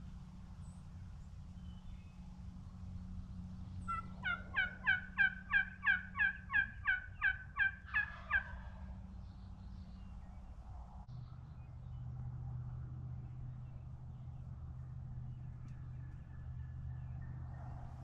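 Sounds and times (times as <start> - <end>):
turkey yelping: 3.9 - 8.8.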